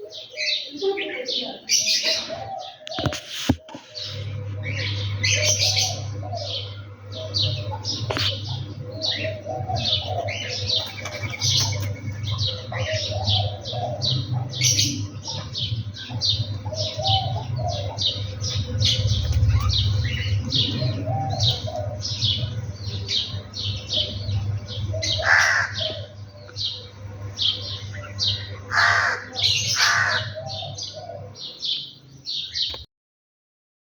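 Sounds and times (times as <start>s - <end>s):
harsh crow-like calls: 24.6s - 31.8s.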